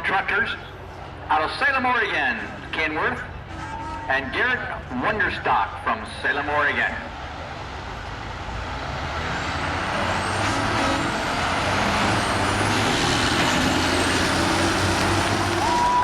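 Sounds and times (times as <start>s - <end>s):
diesel trucks racing: 0.0s - 16.0s.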